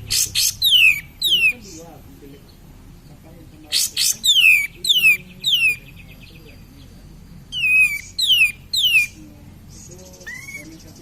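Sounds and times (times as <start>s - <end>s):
bird whistling falling calls: 0.0s - 1.8s, 3.8s - 6.2s, 7.5s - 11.0s.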